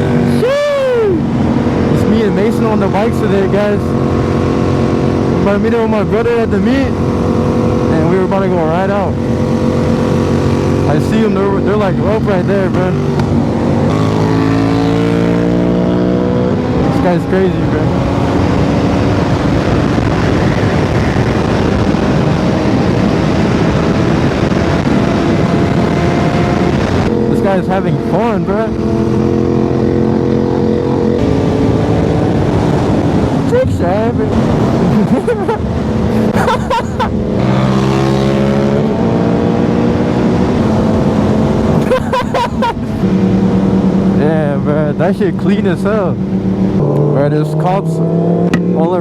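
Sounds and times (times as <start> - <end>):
motorcycle exhaust rumble: 1.1 - 49.0.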